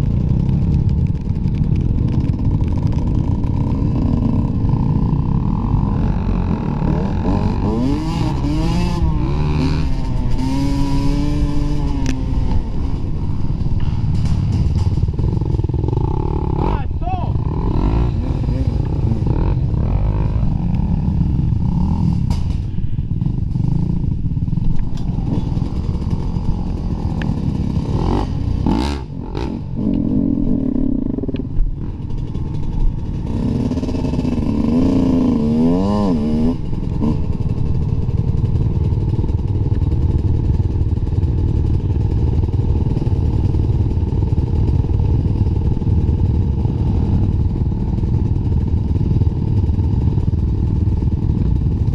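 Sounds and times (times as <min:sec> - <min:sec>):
dirt bike engine revving: 0:01.8 - 0:39.2.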